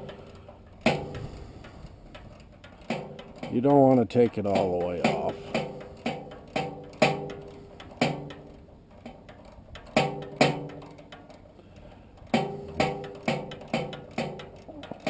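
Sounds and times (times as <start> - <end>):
sharp metal-on-metal strikes: 12.3 - 14.5.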